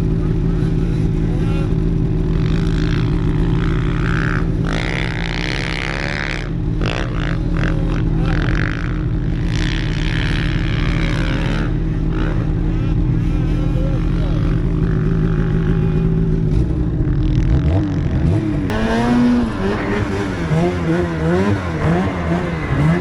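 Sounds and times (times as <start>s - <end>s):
snowmobile engine revving: 0.0s - 23.0s.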